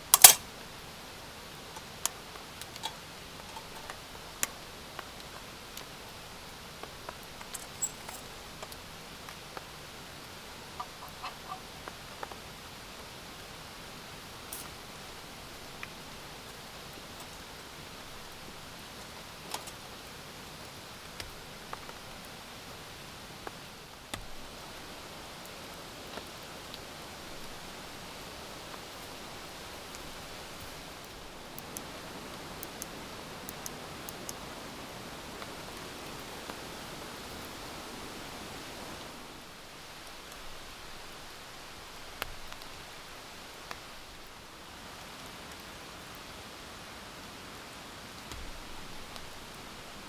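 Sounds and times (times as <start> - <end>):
steady rain hissing: 0.0 - 50.0
single raindrops tapping: 10.6 - 12.4, 28.7 - 36.7.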